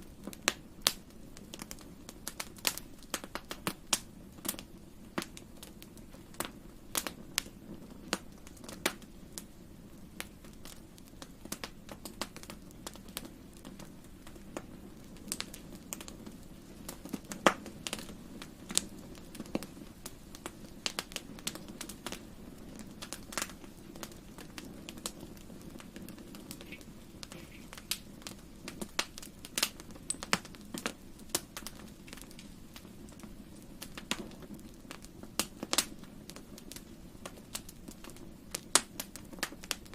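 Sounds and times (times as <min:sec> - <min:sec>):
fire crackling and popping: 0:00.0 - 0:39.9
low hiss of flames: 0:00.0 - 0:39.9.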